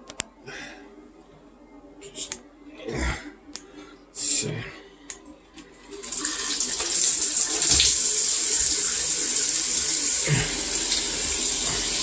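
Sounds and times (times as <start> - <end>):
water pouring from shower: 5.9 - 12.0.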